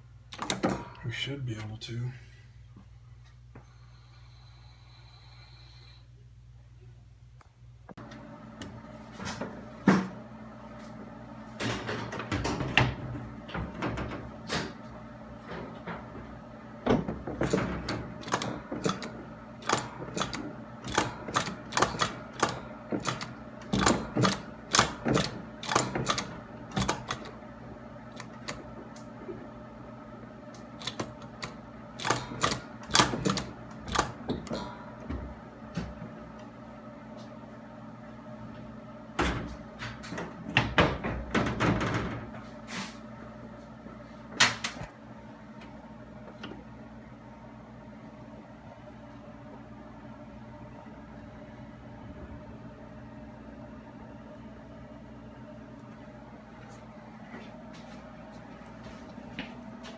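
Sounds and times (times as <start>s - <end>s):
steady low hum: 0.0s - 59.9s
hand tools clicking on metal: 30.8s - 34.5s.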